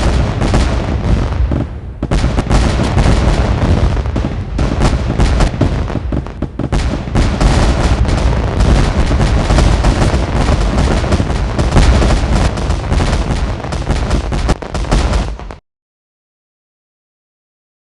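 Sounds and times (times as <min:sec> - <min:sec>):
heavy low rumble: 0:00.0 - 0:15.5
fireworks bangs and crackles: 0:00.0 - 0:15.6.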